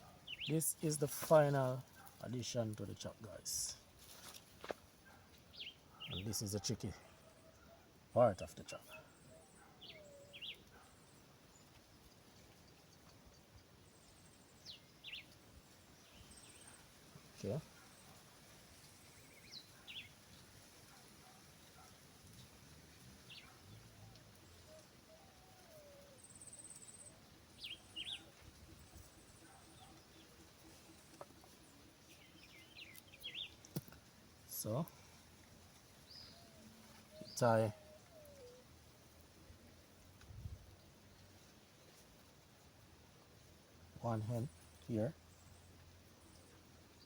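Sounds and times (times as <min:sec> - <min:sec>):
faint birds chirping: 0:00.0 - 0:47.0.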